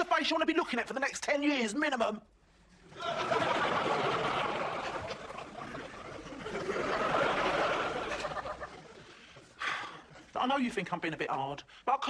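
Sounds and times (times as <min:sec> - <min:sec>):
studio audience laughing: 0:02.9 - 0:09.5.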